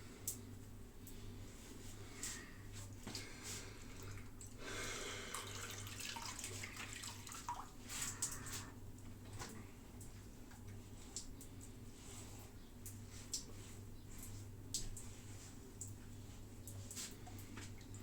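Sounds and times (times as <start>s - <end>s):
tap water running into sink: 5.3s - 8.4s.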